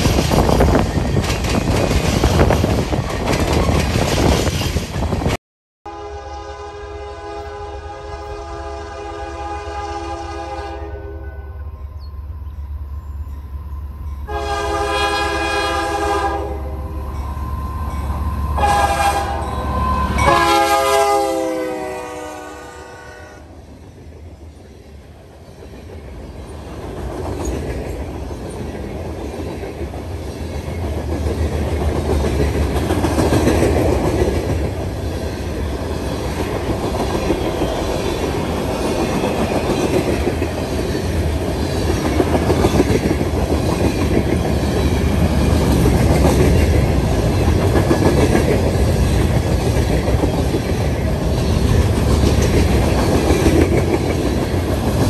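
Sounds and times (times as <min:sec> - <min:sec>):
train wheels clickety-clack: 0:00.0 - 0:05.4, 0:25.3 - 0:55.0
locomotive air horn: 0:05.9 - 0:11.7, 0:14.3 - 0:17.0, 0:18.4 - 0:23.6.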